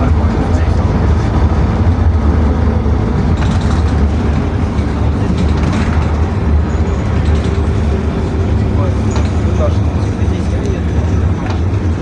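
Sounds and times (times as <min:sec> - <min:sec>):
bus engine and road rumble: 0:00.0 - 0:12.0
faint rattles and clicks: 0:03.1 - 0:08.0.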